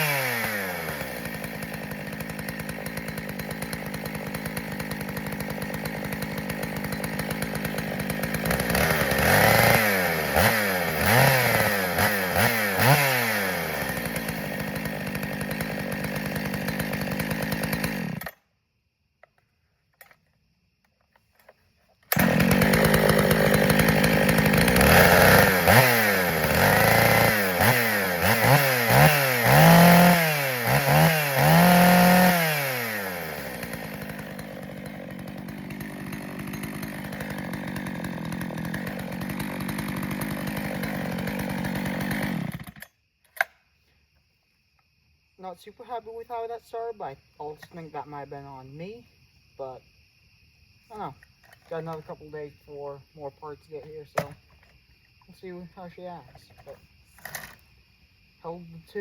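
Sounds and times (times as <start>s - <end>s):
chainsaw idling and revving: 0.0s - 18.5s, 22.1s - 43.0s, 50.9s - 57.6s.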